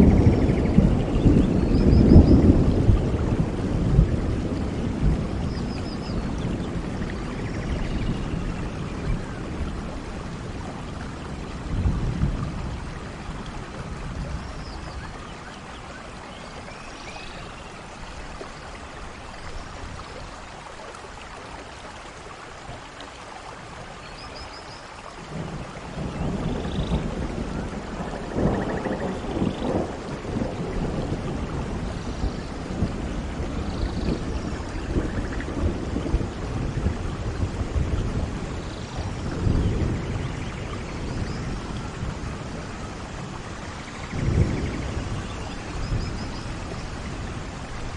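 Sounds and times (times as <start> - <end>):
low rolling thunder: 0.0 - 15.2, 25.2 - 47.9
heavy rain: 0.0 - 47.9.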